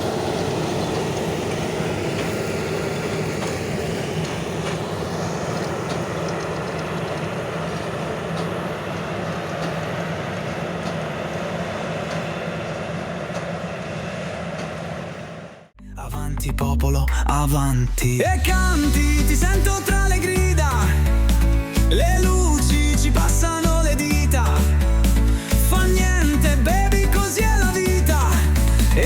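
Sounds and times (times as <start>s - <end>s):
mechanical clatter: 0.0s - 15.6s
diesel farm machinery engine drone: 0.0s - 15.8s.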